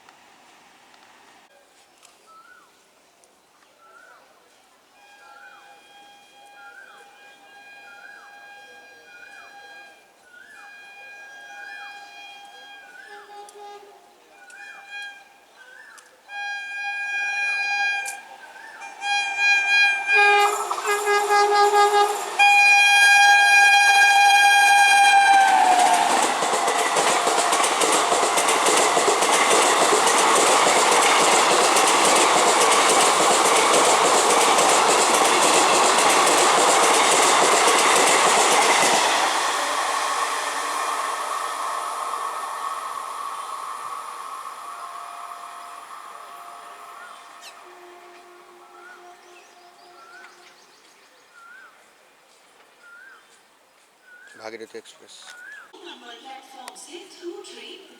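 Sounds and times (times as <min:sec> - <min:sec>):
train horn: 0:04.7 - 0:50.9
train rushing past: 0:16.3 - 0:51.6.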